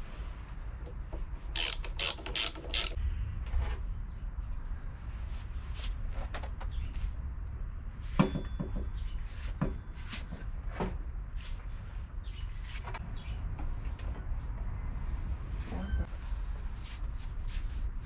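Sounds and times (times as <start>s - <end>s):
tools and metal parts clinking: 1.6s - 3.0s.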